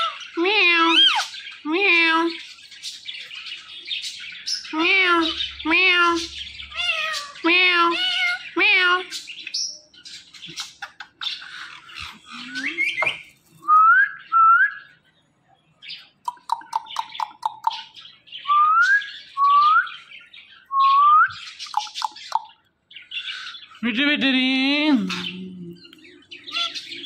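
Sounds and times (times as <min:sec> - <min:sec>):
parrot squawking: 0:00.0 - 0:02.5, 0:04.5 - 0:09.4, 0:10.3 - 0:13.3, 0:21.6 - 0:27.0.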